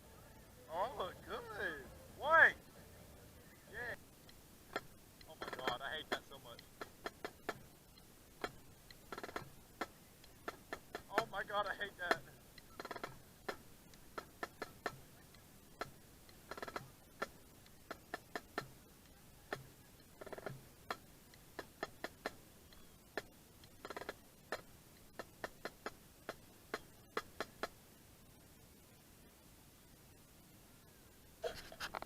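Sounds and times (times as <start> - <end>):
sharp taps and clicks: 3.9 - 27.8
rattling flurries of taps: 4.7 - 7.7.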